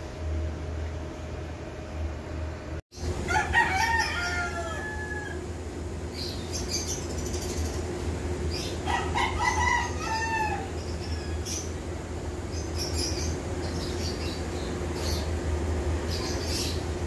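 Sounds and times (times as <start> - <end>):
steady low hum: 0.0 - 17.0
rooster crowing: 3.2 - 5.5, 8.8 - 11.6.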